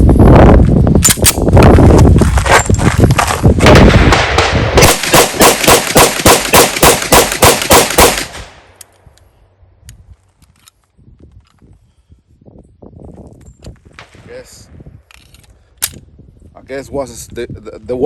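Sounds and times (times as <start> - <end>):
pistol shots: 3.7 - 8.6.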